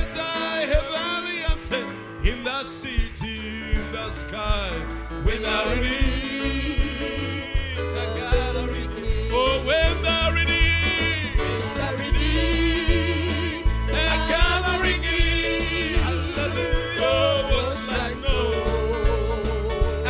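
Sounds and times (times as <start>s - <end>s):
band playing: 0.0s - 20.0s
bass line: 0.0s - 20.0s
drum beat: 0.0s - 20.0s
voices singing with vibrato: 5.3s - 20.0s.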